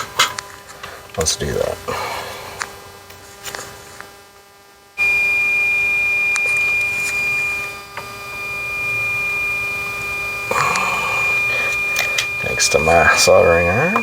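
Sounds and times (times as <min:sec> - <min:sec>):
high-pitched buzzer alarm: 0:04.8 - 0:14.0.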